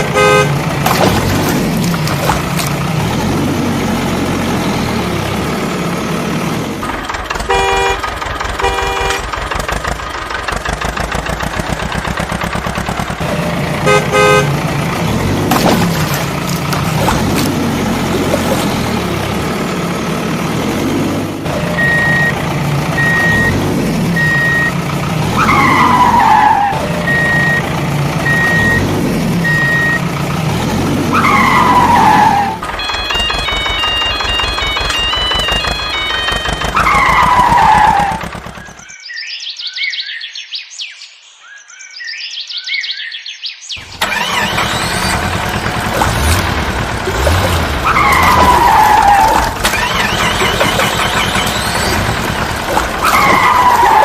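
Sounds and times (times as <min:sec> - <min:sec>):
heavy vehicle engines running: 0:00.0 - 0:38.9, 0:43.8 - 0:54.0
short horn honks: 0:07.5 - 0:08.0, 0:08.6 - 0:09.3, 0:13.8 - 0:14.6
falling squeal: 0:31.1 - 0:35.2, 0:36.4 - 0:38.7, 0:47.5 - 0:54.0.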